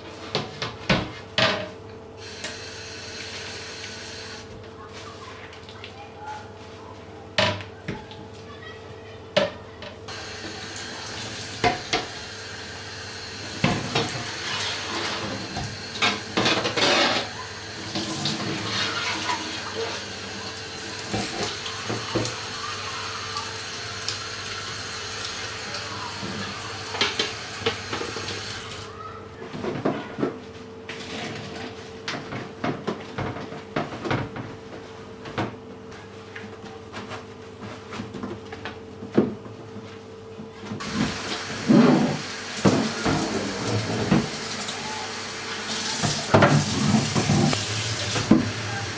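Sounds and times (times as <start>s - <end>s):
tap running into sink: 10.2s - 12.2s, 21.0s - 22.5s, 40.8s - 44.8s, 45.6s - 48.9s.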